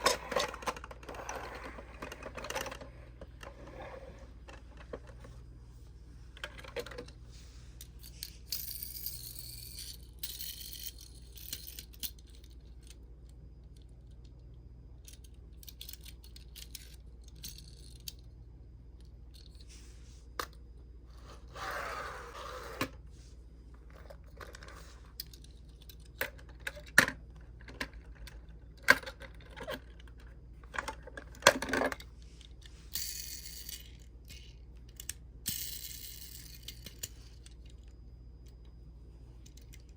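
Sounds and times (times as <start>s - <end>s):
toy cars clicking and clinking: 8.0s - 13.0s, 15.0s - 18.3s, 24.0s - 37.9s.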